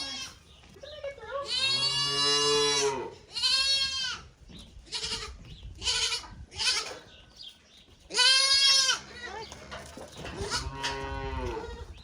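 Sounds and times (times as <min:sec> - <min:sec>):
calves bawling: 0:08.1 - 0:12.0.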